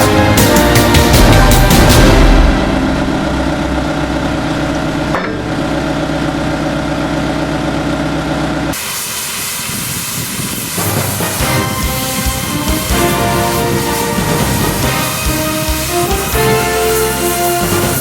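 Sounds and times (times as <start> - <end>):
steady hum: 1.1 - 8.8
welding arc sizzling: 8.7 - 18.0.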